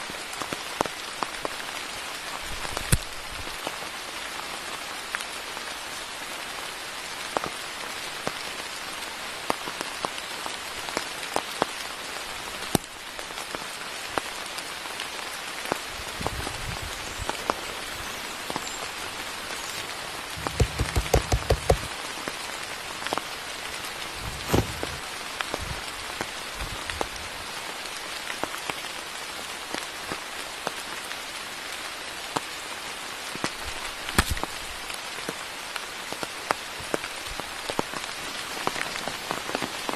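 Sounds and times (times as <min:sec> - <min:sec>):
steady rain in forest: 0:00.0 - 0:39.9
heavy raindrops tapping: 0:19.6 - 0:22.3
low thuds: 0:20.4 - 0:21.9.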